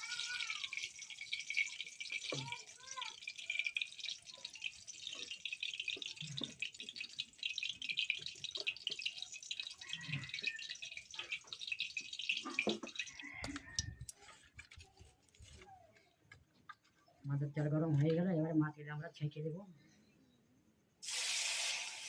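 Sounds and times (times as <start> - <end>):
oil crackling in a pan: 0.0 - 14.2, 21.0 - 22.0.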